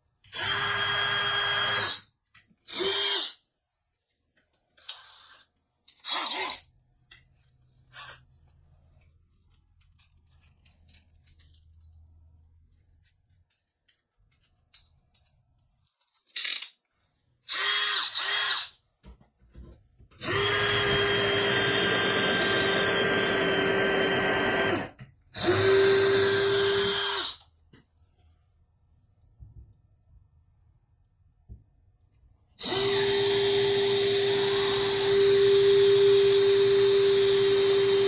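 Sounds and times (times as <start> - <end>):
power drill motor whine: 0.3 - 2.0, 20.2 - 27.4, 32.6 - 38.0.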